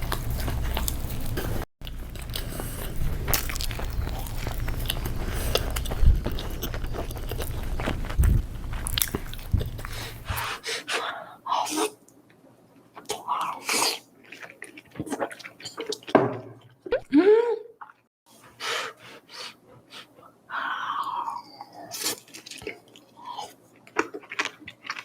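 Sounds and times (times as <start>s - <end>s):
low rumble: 0.0s - 10.5s
chewing: 0.0s - 10.6s, 12.9s - 16.1s, 21.0s - 25.0s.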